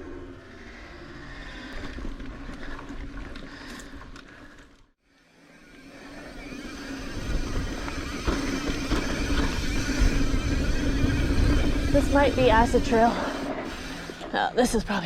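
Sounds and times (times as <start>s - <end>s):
bike tyre rumble on dirt: 0.0s - 4.9s, 5.9s - 15.0s
wind noise on microphone: 7.0s - 14.2s.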